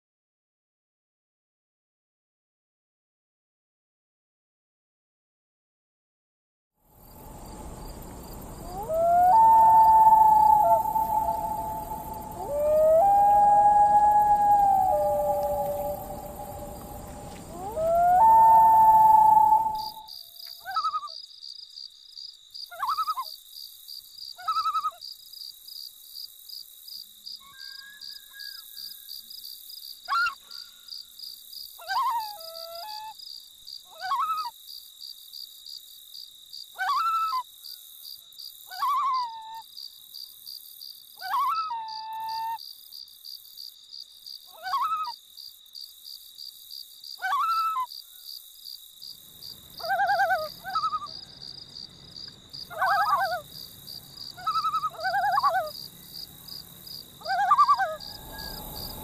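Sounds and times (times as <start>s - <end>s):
high insect trill: 7.0s - 38.9s, 39.6s - 59.0s
loon calling: 8.6s - 21.0s, 49.8s - 51.2s, 52.7s - 53.4s, 54.4s - 55.8s, 57.2s - 59.0s.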